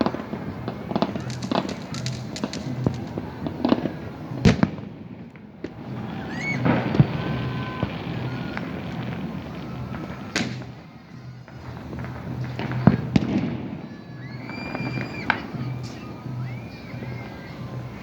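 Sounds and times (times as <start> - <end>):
firework bangs: 0.0 - 18.0
fireworks crackling and popping: 0.0 - 18.0
rising firework whistle: 5.6 - 18.0.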